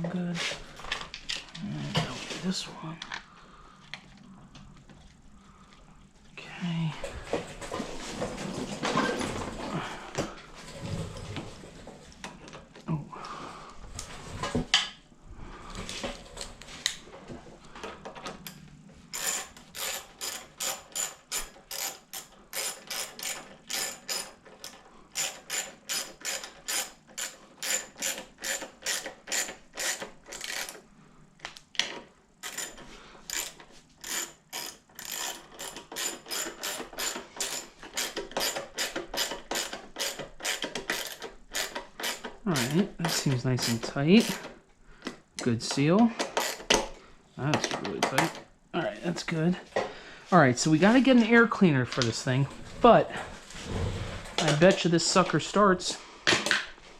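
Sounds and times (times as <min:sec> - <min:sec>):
ratchet wrench clicking: 0:19.1 - 0:30.8, 0:32.4 - 0:44.4, 0:46.4 - 0:46.7.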